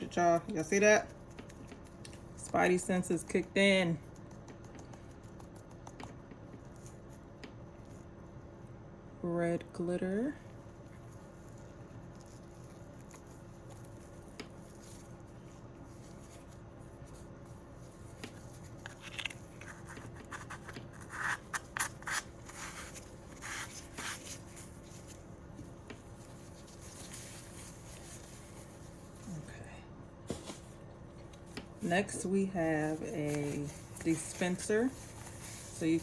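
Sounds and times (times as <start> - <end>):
low room hum: 0.0 - 36.0
packaging rustling and scraping: 30.2 - 36.0.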